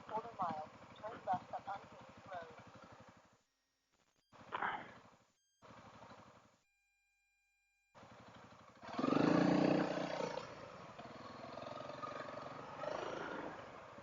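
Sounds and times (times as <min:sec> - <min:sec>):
motorcycle engine accelerating: 0:00.0 - 0:03.5, 0:04.3 - 0:06.6, 0:08.0 - 0:14.0.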